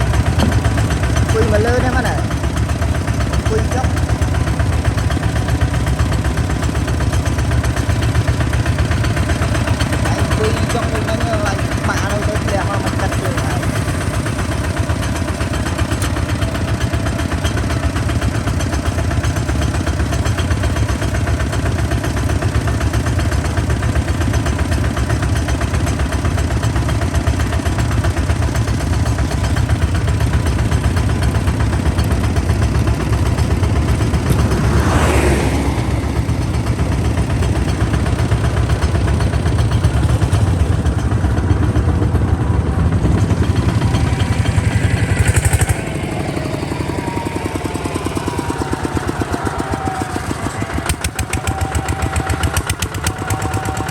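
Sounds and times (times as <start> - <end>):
diesel engine running: 0.0 - 53.9
sound rising in pitch: 44.0 - 51.0.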